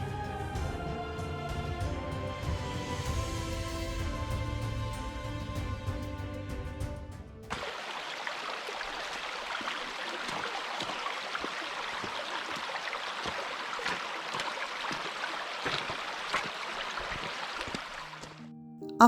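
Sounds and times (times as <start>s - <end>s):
river water rushing over stones: 7.5s - 18.3s.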